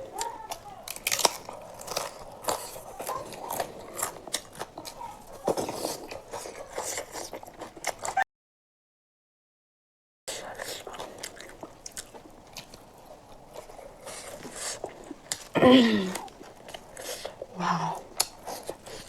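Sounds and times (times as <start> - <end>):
crunchy bites: 0.0 - 8.2
wet chewing and smacking: 0.0 - 8.2, 10.3 - 19.0.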